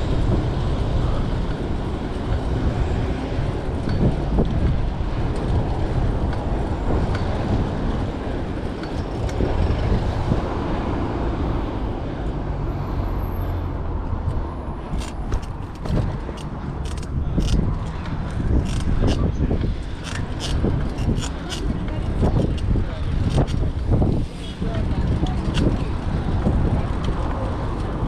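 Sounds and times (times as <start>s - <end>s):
road traffic rumble: 0.0s - 28.0s
bicycle clicks and rattles: 15.0s - 24.0s, 25.0s - 28.0s.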